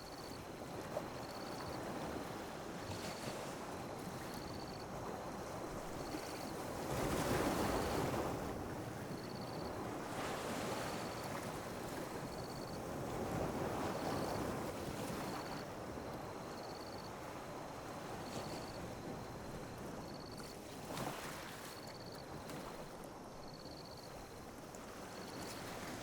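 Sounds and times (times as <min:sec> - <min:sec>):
small waves washing onto beach: 0:00.0 - 0:26.0.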